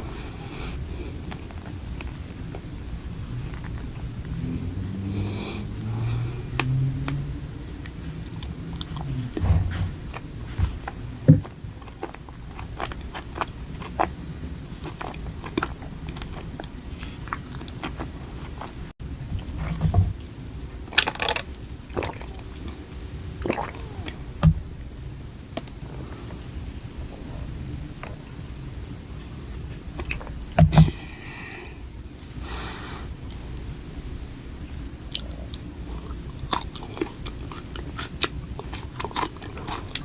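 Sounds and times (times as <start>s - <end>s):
chewing and biting food: 0.0s - 24.4s, 35.0s - 40.0s.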